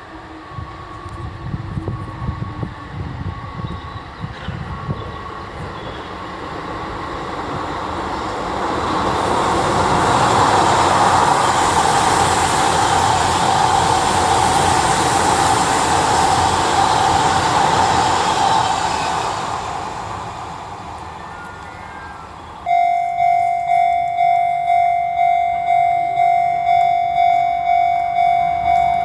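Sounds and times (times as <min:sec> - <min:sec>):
electric train passing: 0:00.0 - 0:29.0.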